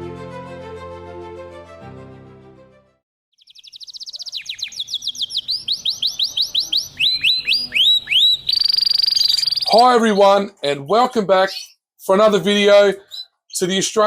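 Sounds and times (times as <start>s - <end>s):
canary singing: 3.4s - 10.4s, 11.4s - 11.8s, 13.0s - 13.7s.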